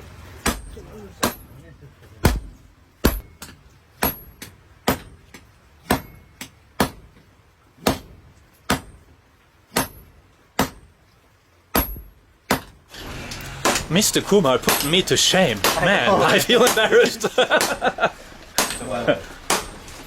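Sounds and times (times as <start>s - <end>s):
hammer striking blade on anvil: 14.6s - 15.9s.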